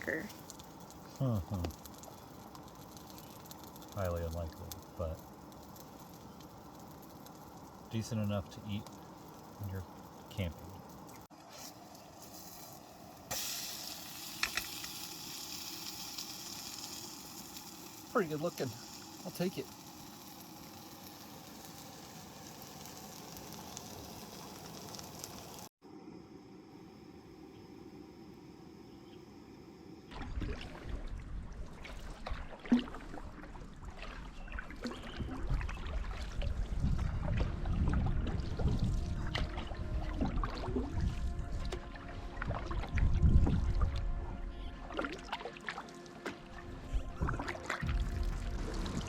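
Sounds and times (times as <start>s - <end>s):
water dripping: 0.0s - 11.3s, 31.7s - 44.1s
faint hiss: 0.0s - 25.7s
pancakes sizzling in a frying pan: 0.2s - 4.0s, 11.6s - 25.7s
paddle strokes with splashes: 30.1s - 44.0s, 44.7s - 49.0s
low rumble: 36.3s - 44.6s, 46.6s - 49.0s.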